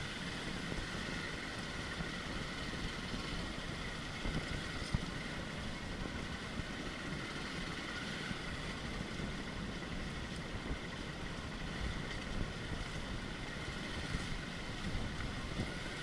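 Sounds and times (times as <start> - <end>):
vehicle engine running: 0.0 - 16.0
wind noise on microphone: 0.0 - 16.0.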